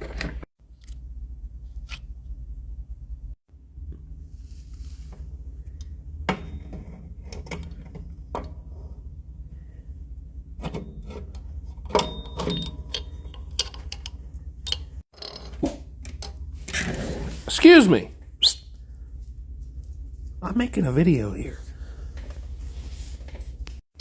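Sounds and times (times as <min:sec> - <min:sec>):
steady low hum: 0:17.3 - 0:23.8.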